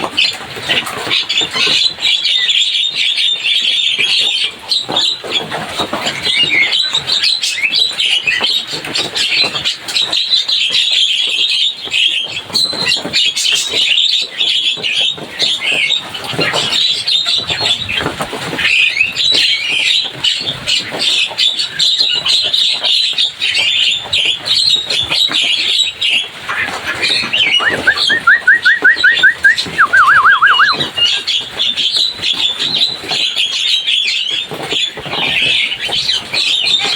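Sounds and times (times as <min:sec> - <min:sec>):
bird chattering and squawking: 0:26.6 - 0:31.2
bird warbling trill: 0:27.4 - 0:30.9
bird whistled notes: 0:27.4 - 0:30.9.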